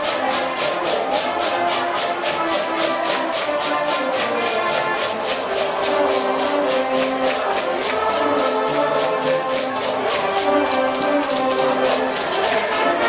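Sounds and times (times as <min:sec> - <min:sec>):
sustained brass notes: 0:00.0 - 0:13.0
fast steady drum beat: 0:00.1 - 0:13.0.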